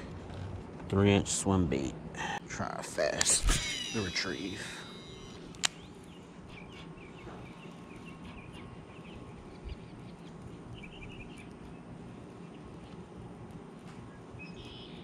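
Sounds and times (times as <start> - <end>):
low outdoor rumble: 0.0 - 15.0
birds chirping: 3.0 - 15.0.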